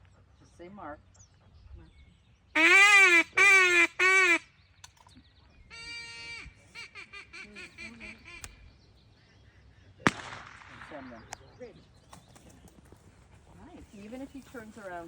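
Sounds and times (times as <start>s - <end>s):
duck call quacks: 2.6s - 4.4s, 5.7s - 8.5s.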